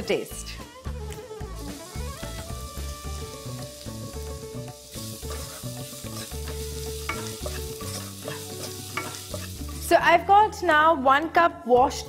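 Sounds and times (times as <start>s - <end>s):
vegetables sizzling in oil: 0.0s - 10.5s
background music with bass line: 0.0s - 12.0s
wooden spoon stirring in pan: 3.4s - 9.8s.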